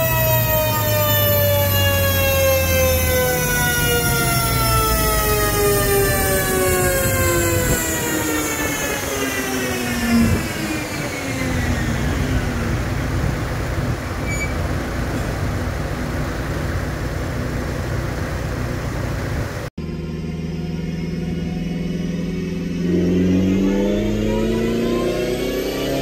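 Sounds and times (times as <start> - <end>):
rushing noise of dyno rollers: 0.0 - 26.0
car engine revs falling: 20.2 - 26.0.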